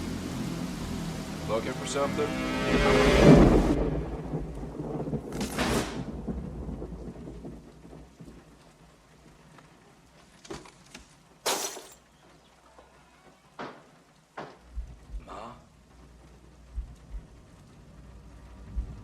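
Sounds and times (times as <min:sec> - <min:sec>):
rain hissing: 0:00.0 - 0:10.4, 0:11.0 - 0:19.0
thunder rumbling and cracking: 0:03.2 - 0:09.4, 0:15.9 - 0:19.0.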